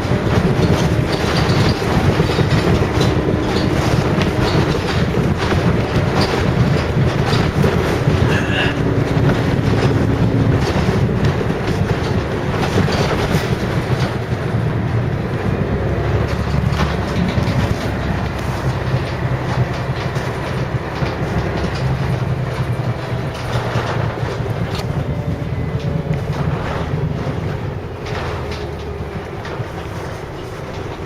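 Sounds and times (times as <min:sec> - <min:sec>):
small rattles: 0:00.0 - 0:14.6
bus diesel engine drone: 0:00.0 - 0:31.0.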